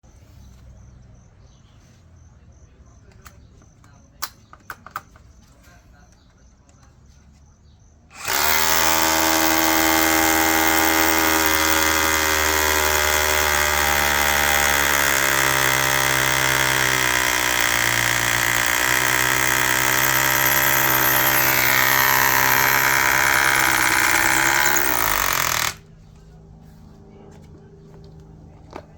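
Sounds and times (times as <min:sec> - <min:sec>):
rotary hammer drilling into concrete: 0:08.1 - 0:25.8.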